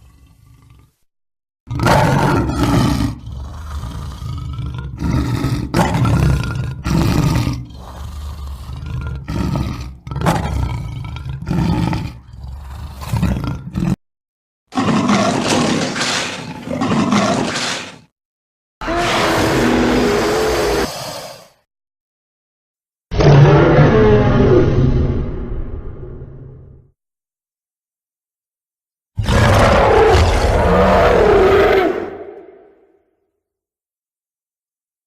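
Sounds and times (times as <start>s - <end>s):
dinosaur roars and snarls: 0.0s - 1.1s, 1.7s - 14.0s, 14.7s - 18.1s, 18.8s - 21.7s, 23.1s - 26.9s, 29.2s - 33.0s.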